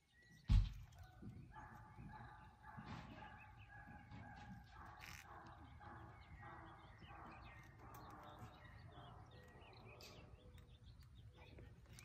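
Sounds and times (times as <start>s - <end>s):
faint bird calls and chirps: 0.0s - 12.0s.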